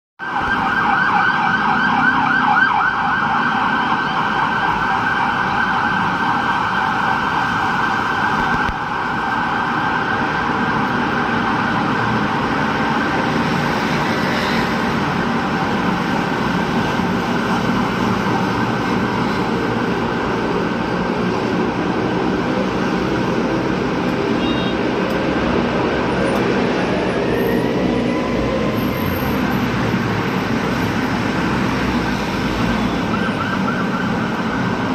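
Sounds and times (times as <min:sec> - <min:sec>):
siren yelping: 0:00.2 - 0:13.6, 0:32.9 - 0:34.9
road traffic rumble: 0:00.2 - 0:34.9.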